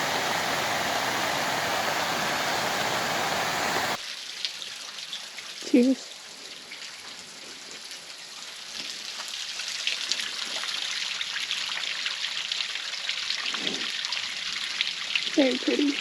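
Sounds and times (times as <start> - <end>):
water splashing over rocks: 0.0 - 4.0.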